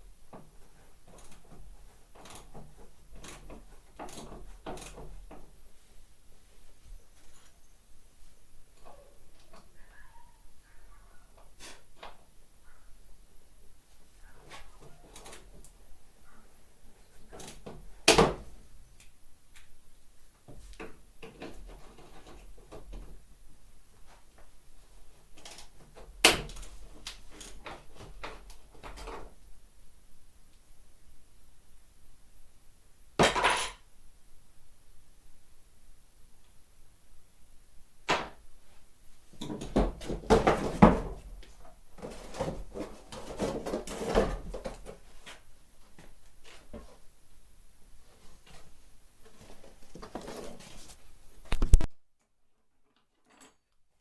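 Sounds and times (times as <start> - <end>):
clanks and knocks of hand work: 0.3 - 5.6, 39.4 - 45.4.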